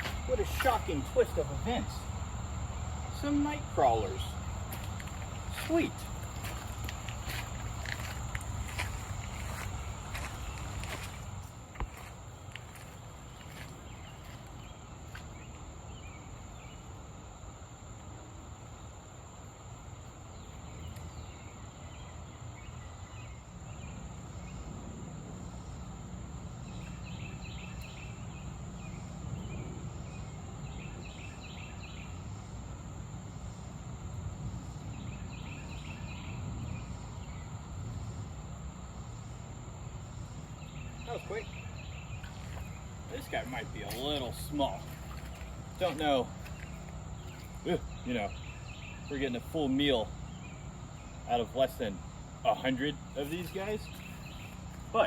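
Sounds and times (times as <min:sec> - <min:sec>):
high-pitched insect drone: 0:00.0 - 0:17.0
insect or bird chirps: 0:00.0 - 0:55.0.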